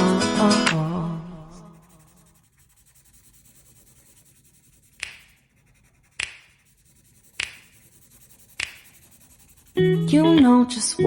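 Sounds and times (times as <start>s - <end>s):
sharp clicks: 6.1s - 6.5s, 8.6s - 8.8s.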